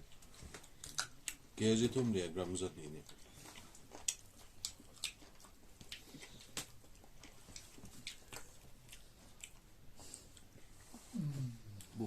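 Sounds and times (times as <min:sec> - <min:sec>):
chewing and mouth noises: 0:00.0 - 0:12.0.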